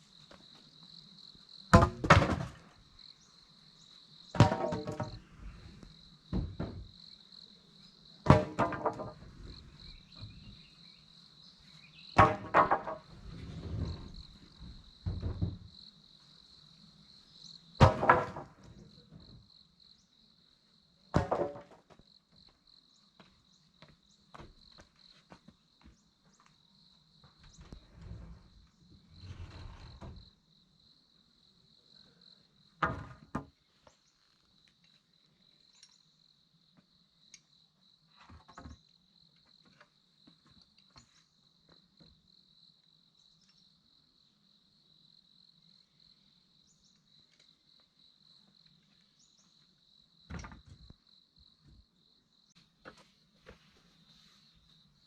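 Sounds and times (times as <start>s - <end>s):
insects chirring: 0.0s - 32.8s, 33.7s - 55.0s
loud knocks: 1.8s - 2.6s, 4.4s - 5.2s, 8.3s - 9.6s, 12.2s - 13.2s.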